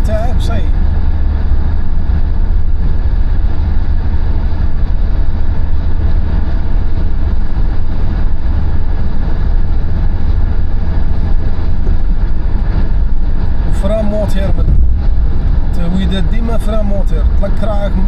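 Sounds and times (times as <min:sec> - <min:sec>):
car driving on highway: 0:00.0 - 0:18.0.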